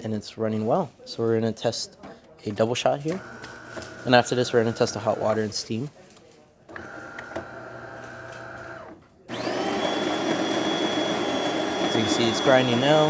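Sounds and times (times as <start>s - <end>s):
coffee grinder running: 3.2s - 5.4s, 6.8s - 13.0s.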